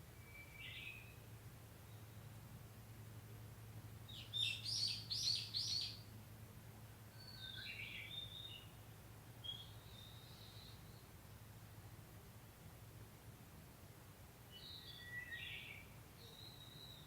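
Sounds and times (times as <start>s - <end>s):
songbirds calling: 0.2s - 2.4s, 4.0s - 6.1s, 7.0s - 11.2s, 14.5s - 17.0s.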